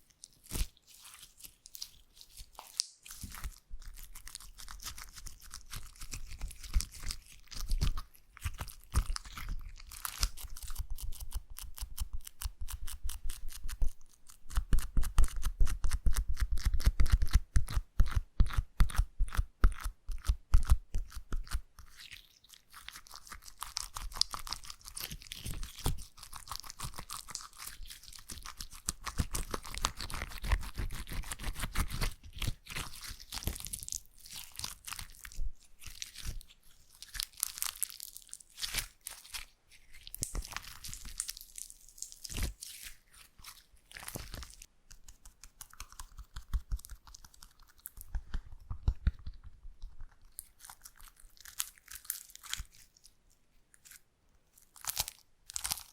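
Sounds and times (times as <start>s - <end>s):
slime squeezed crackling: 0.0s - 12.3s, 21.9s - 49.0s, 50.0s - 53.1s, 54.6s - 55.9s.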